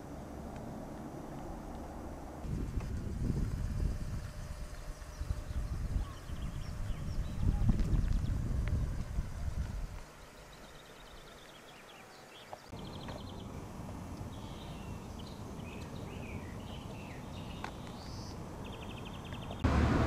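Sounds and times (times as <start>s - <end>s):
low outdoor rumble: 0.0s - 11.4s
songbirds chirping and trilling: 4.3s - 8.4s, 9.4s - 19.6s.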